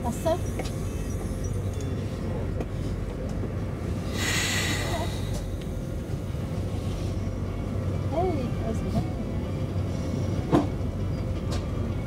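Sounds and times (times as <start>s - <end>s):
train low hum: 0.0s - 12.0s
short hiss: 4.1s - 5.3s.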